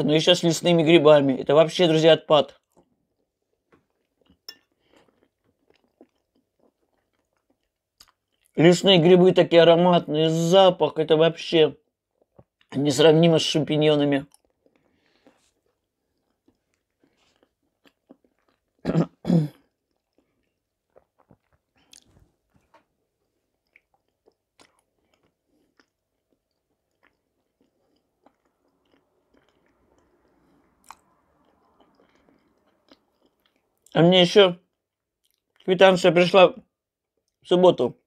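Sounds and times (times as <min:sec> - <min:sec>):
close-up chewing: 0:02.6 - 0:08.6, 0:14.2 - 0:18.8, 0:19.7 - 0:34.0.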